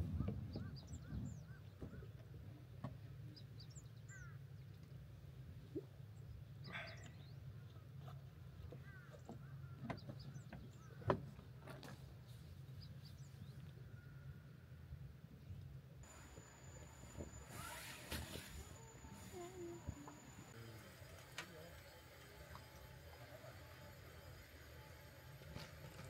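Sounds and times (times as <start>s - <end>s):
birds chirping: 0.1s - 5.0s, 5.6s - 11.5s.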